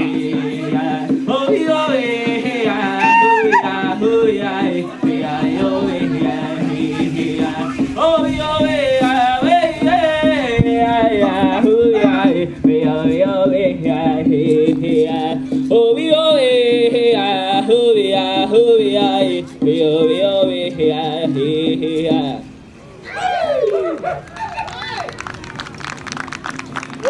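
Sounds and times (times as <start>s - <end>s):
person singing wavering lines: 2.9s - 4.0s.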